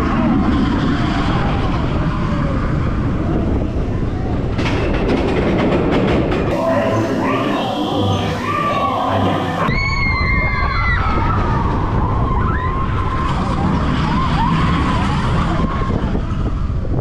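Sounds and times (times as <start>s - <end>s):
roller coaster rumble: 0.0s - 17.0s
high squeal: 6.5s - 11.4s.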